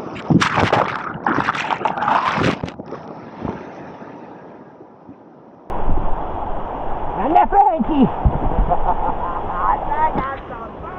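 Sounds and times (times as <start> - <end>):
water splashing: 0.0 - 3.7
rushing water: 0.0 - 4.2, 5.7 - 10.9.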